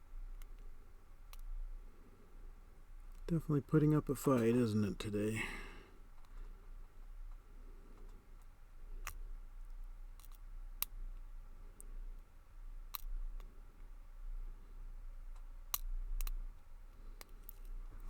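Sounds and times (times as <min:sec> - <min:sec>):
faint ticks: 0:07.2 - 0:12.2.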